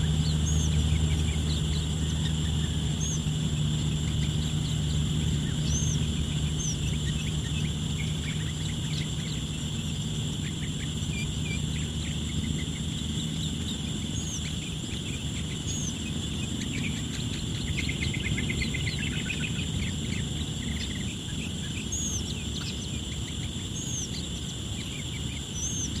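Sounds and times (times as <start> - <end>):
birds chirping: 0.0 - 26.0
high insect drone: 0.0 - 26.0.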